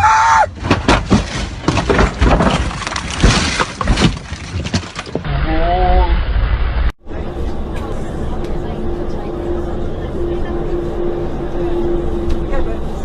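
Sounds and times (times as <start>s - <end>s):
car crash impacts and crunching: 0.5s - 5.3s
glass breaking: 0.8s - 5.2s.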